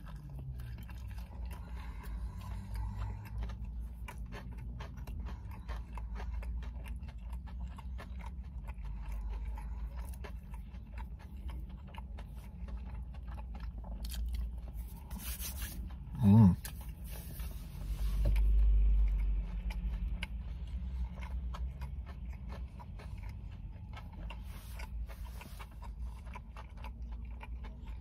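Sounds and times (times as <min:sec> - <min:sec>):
biting food: 0:00.0 - 0:17.1, 0:18.3 - 0:28.0
man chewing: 0:00.0 - 0:28.0.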